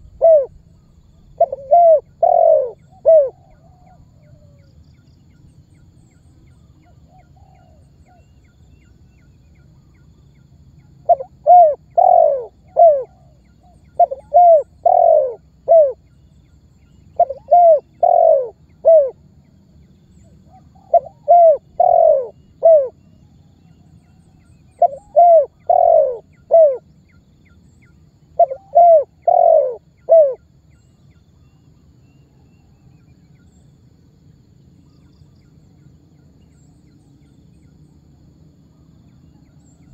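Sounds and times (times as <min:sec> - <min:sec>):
dove cooing: 0:00.0 - 0:00.6, 0:01.2 - 0:04.6, 0:06.9 - 0:08.2, 0:11.0 - 0:16.0, 0:17.1 - 0:19.2, 0:20.4 - 0:23.0, 0:24.2 - 0:26.9, 0:28.3 - 0:30.4
low background hum: 0:00.0 - 0:39.9.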